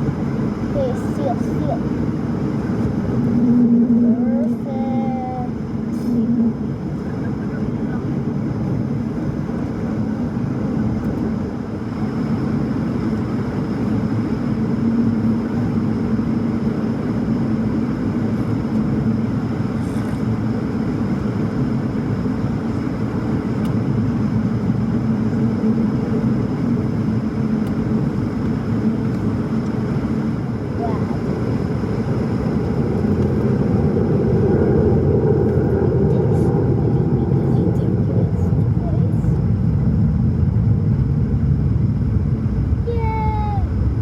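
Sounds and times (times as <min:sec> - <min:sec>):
jet engine drone in cabin: 0:00.0 - 0:44.0.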